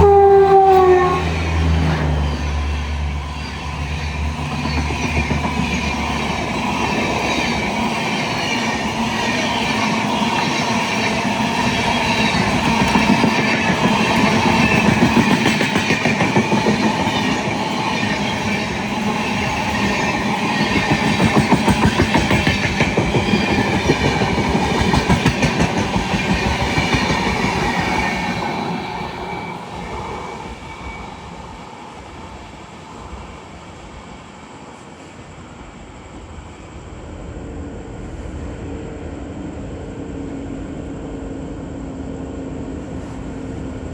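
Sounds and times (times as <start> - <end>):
train wheels clattering over rails: 1.7 - 30.7.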